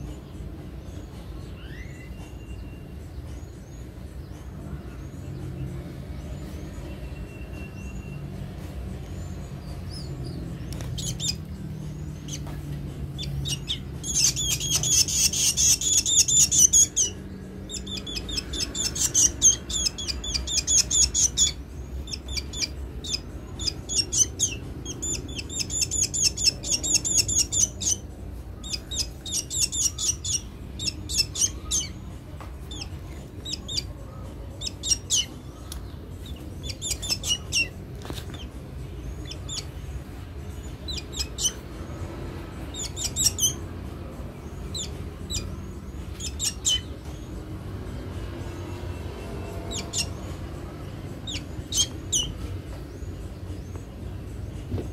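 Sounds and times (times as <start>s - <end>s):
bird high-pitched chirps: 1.4s - 3.3s, 9.4s - 41.8s, 42.6s - 43.8s, 44.4s - 47.1s, 48.4s - 50.5s, 51.1s - 53.9s.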